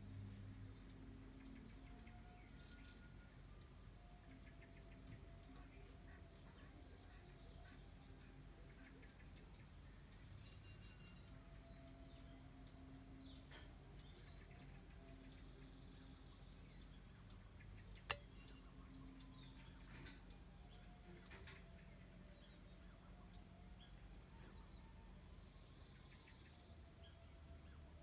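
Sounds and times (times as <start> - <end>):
faint birdsong: 0.0 - 28.0
low outdoor hum: 0.0 - 28.0
sharp click: 18.1 - 18.6.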